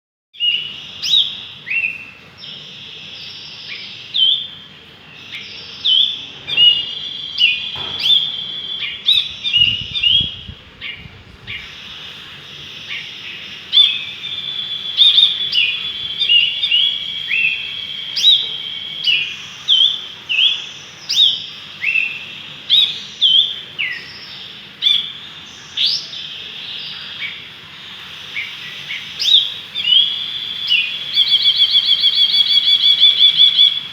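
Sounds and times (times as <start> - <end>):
steady high tone: 12.6 - 19.5, 27.7 - 33.9
bulbul chirping: 28.2 - 33.9.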